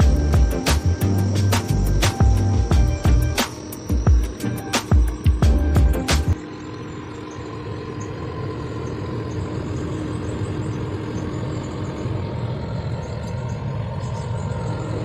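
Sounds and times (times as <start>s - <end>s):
background music: 0.0s - 6.4s
faint hum: 0.0s - 15.0s.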